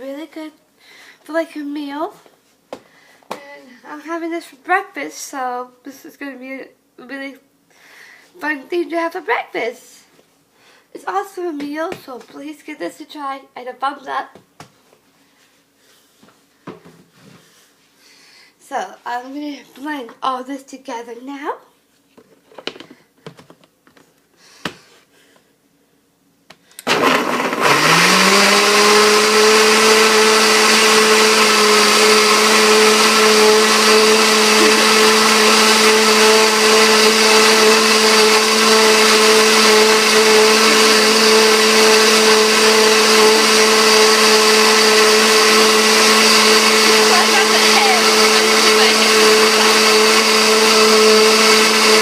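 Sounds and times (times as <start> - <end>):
electric blender whining: 26.8 - 52.0.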